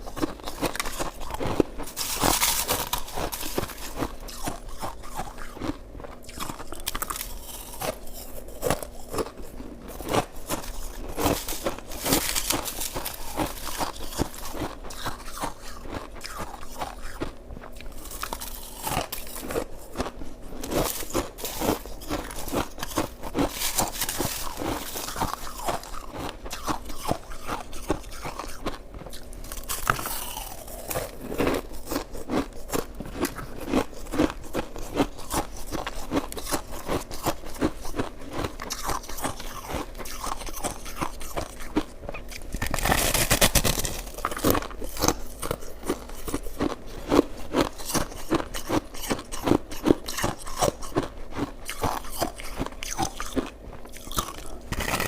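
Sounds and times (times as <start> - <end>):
crunching shaved ice: 0.0 - 55.0.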